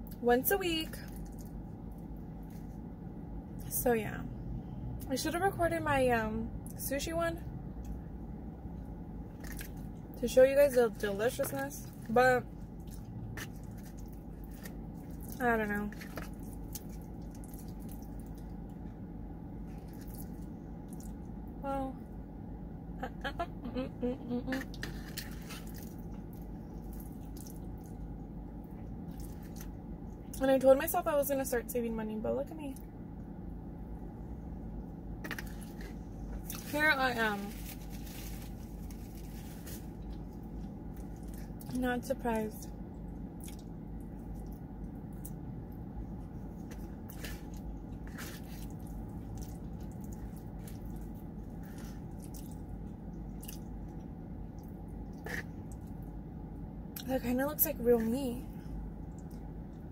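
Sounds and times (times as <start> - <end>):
steady low hum: 0.0 - 59.9
person chewing: 12.7 - 18.8, 19.7 - 21.3, 24.5 - 28.1, 43.3 - 45.4, 46.2 - 56.1.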